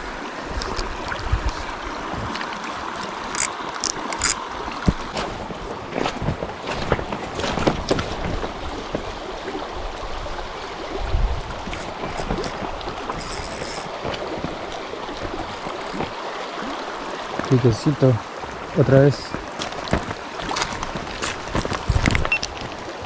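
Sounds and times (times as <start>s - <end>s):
stream water rushing: 0.0s - 23.0s
small clicks and splashes: 0.5s - 1.6s, 2.3s - 5.1s, 11.4s - 16.2s, 19.3s - 22.8s.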